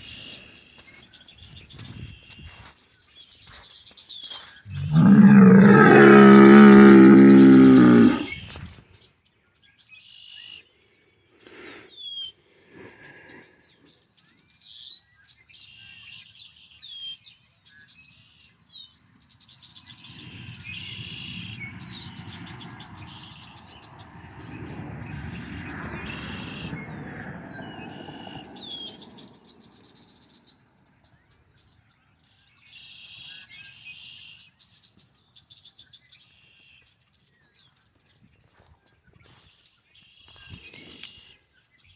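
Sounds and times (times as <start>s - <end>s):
songbirds chirping: 0.0s - 41.9s
bull bellowing: 4.7s - 8.3s
car passing by: 19.8s - 30.6s.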